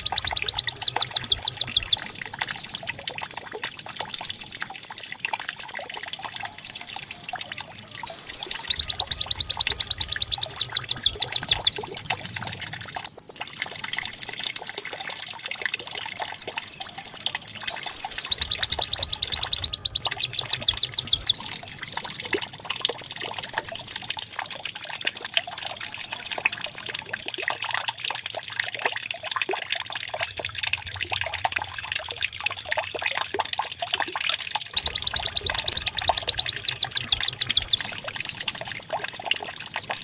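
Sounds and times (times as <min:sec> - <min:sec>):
bird singing rapid trills: 0:00.0 - 0:26.9, 0:34.8 - 0:40.0
faint bird chirps: 0:00.0 - 0:26.9, 0:34.8 - 0:40.0.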